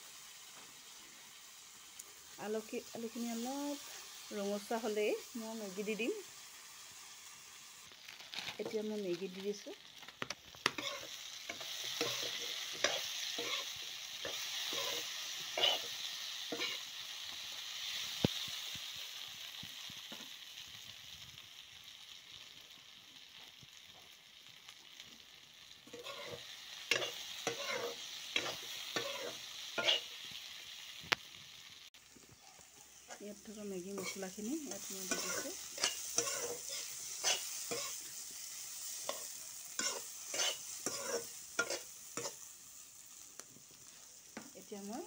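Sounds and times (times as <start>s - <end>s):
food sizzling in oil: 0.0s - 45.0s
spatula scraping and knocking pan: 10.2s - 15.0s, 35.0s - 38.0s.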